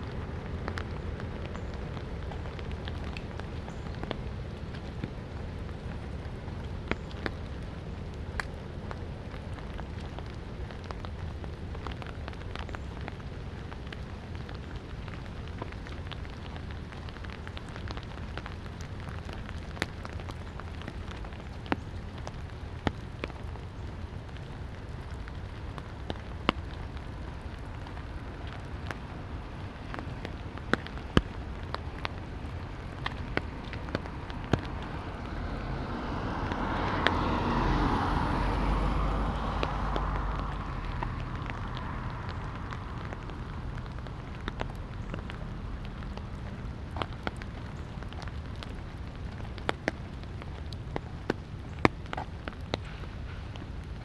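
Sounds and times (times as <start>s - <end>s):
light rain hissing: 0.0s - 54.0s
raindrops ticking close by: 0.0s - 54.0s
passing car: 31.4s - 47.4s.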